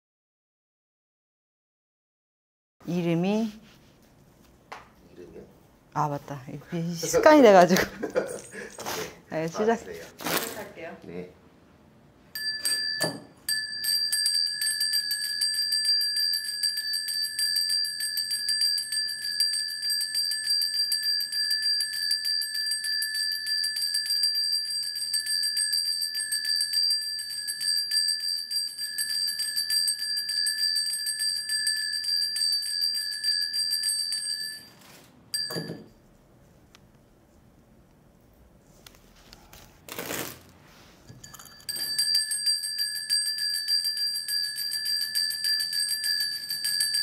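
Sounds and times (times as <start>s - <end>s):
brass bells jangling: 12.4s - 34.8s, 41.2s - 47.0s.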